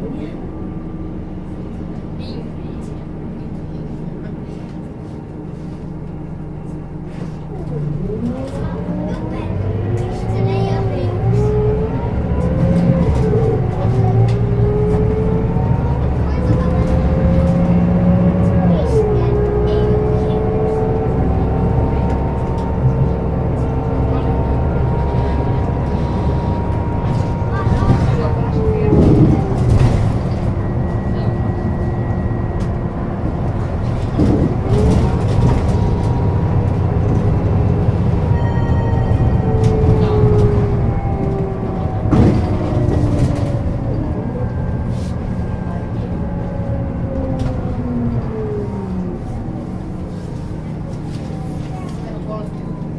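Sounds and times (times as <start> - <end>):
bus diesel engine drone: 0.0 - 52.9
gearbox whine: 18.7 - 50.0.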